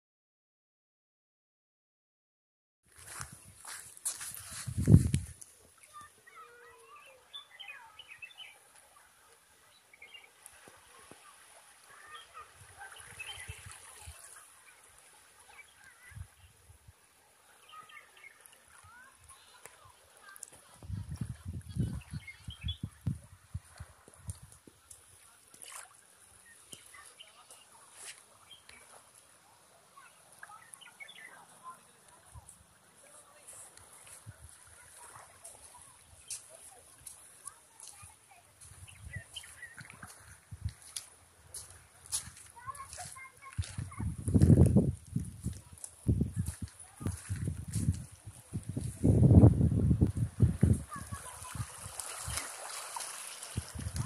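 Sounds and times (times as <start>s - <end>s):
birds chirping and twittering: 5.9s - 8.8s, 9.6s - 16.6s, 17.4s - 20.4s, 21.1s - 23.3s, 26.3s - 29.0s, 29.9s - 32.4s, 34.0s - 41.0s.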